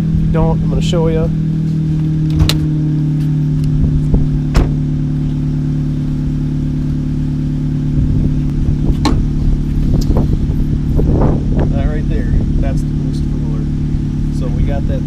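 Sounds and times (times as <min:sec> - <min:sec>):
car engine idling: 0:00.0 - 0:15.0
sharp engine knocks: 0:02.0 - 0:02.8, 0:03.8 - 0:04.9, 0:08.4 - 0:10.3.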